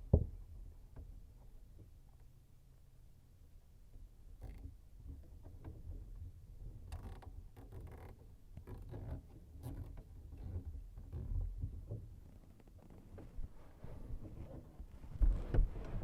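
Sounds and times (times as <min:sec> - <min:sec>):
handling knocks creaks and rustles: 0:04.4 - 0:16.0.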